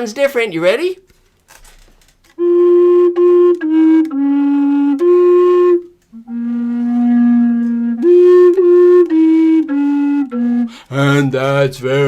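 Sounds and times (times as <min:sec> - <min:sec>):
low-pitched flute playing: 0:02.4 - 0:11.4
player taking a breath: 0:10.7 - 0:10.9.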